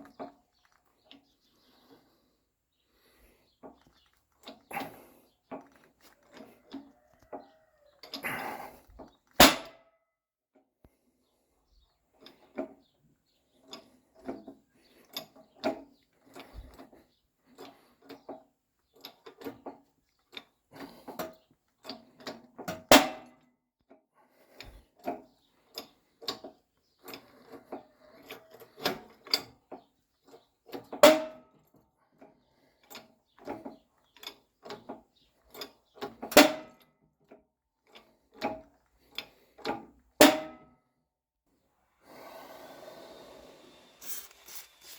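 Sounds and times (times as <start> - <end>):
hand tools clinking and knocking: 44.0 - 44.9.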